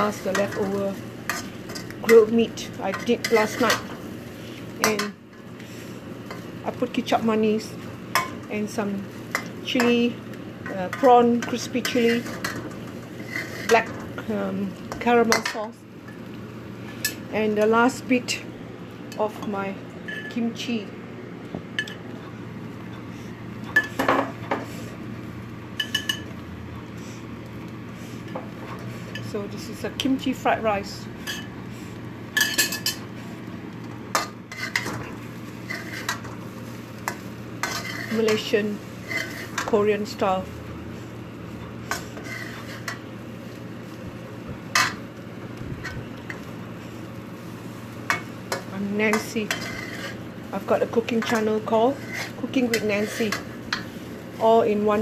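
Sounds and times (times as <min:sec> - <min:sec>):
metal utensil scraping a pan: 0:00.0 - 0:03.9, 0:10.7 - 0:14.2, 0:34.1 - 0:36.3, 0:37.0 - 0:40.2, 0:41.9 - 0:43.0, 0:48.1 - 0:50.2, 0:50.8 - 0:53.9.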